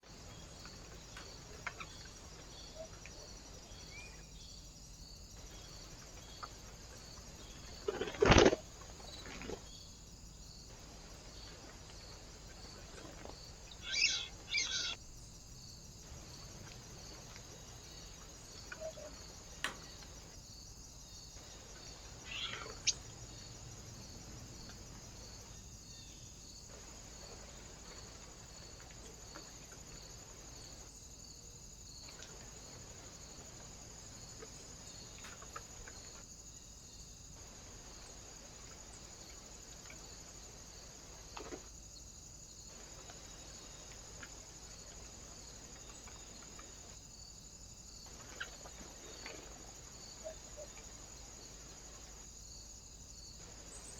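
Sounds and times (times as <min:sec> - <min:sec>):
faint steady hiss: 0:00.0 - 0:53.9
small birds chirping: 0:11.2 - 0:15.4, 0:21.1 - 0:23.6.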